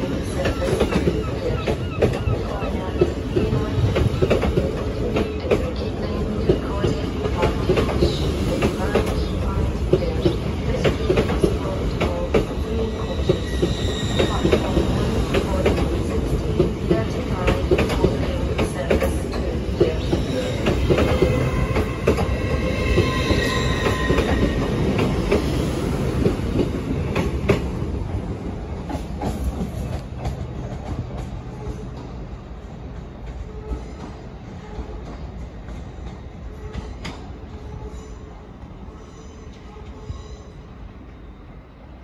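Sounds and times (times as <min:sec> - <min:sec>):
high wheel squeal: 0:13.0 - 0:15.2, 0:21.2 - 0:24.8.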